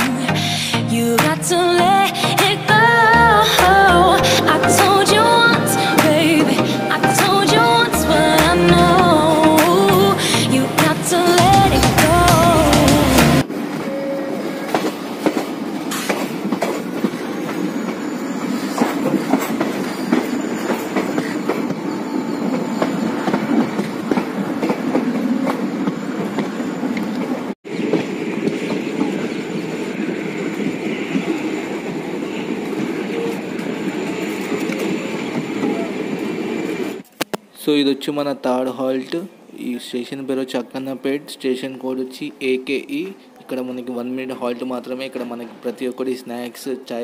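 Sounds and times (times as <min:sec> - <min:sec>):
train wheels on rail joints: 0:13.4 - 0:37.1.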